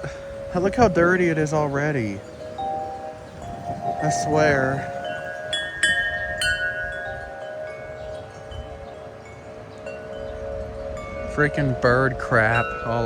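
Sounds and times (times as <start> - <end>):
low wind noise: 0.0 - 13.0
wind chimes ringing: 0.0 - 13.0.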